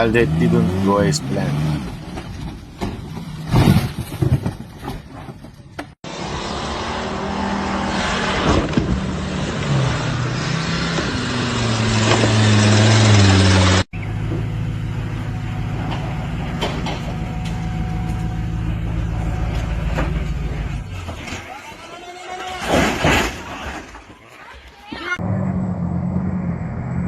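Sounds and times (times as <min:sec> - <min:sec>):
truck engine revving hard: 0:00.0 - 0:02.2, 0:06.1 - 0:13.8
truck engine droning: 0:00.0 - 0:03.1, 0:06.1 - 0:22.0, 0:25.2 - 0:27.0.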